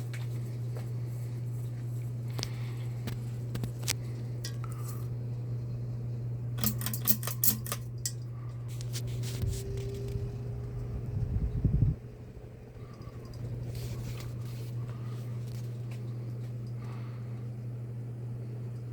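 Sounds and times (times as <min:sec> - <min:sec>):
ceiling fan motor humming: 0:00.0 - 0:18.9
light clicks and clinks: 0:06.6 - 0:08.3, 0:12.8 - 0:16.9.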